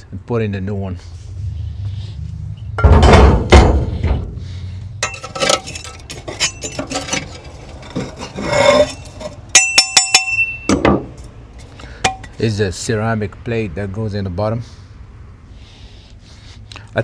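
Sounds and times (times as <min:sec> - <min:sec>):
metal grill grate clanking and scraping: 0:01.2 - 0:12.4
ringing metal clinks: 0:09.5 - 0:10.9.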